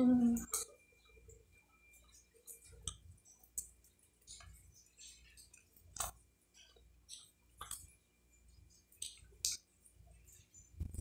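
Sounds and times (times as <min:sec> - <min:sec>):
person chewing: 0:02.0 - 0:08.0.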